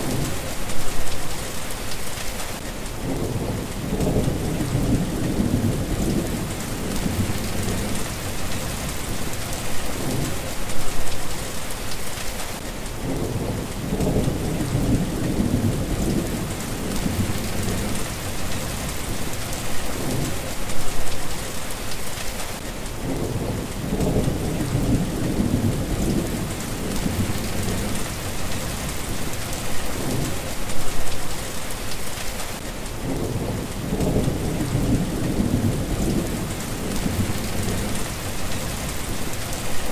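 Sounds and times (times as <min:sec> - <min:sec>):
steady rain: 0:00.0 - 0:39.9
low rolling thunder: 0:03.0 - 0:10.9, 0:13.0 - 0:20.9, 0:23.0 - 0:30.9, 0:33.0 - 0:39.9.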